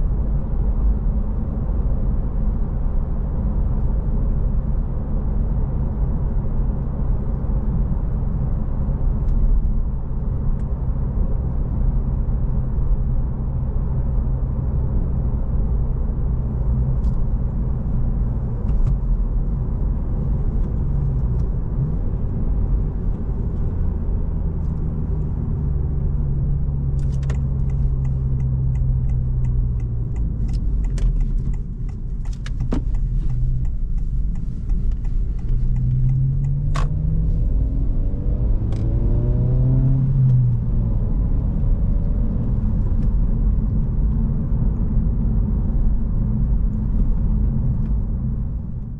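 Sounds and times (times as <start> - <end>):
car engine droning: 0.0 - 48.9
road noise: 0.0 - 48.9.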